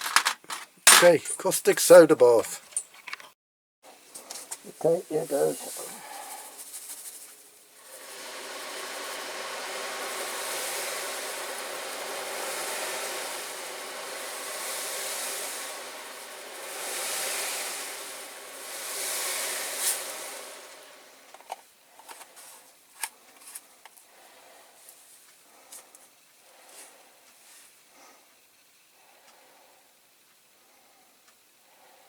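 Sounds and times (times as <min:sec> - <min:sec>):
chemical bath fizzing: 0:04.0 - 0:23.0.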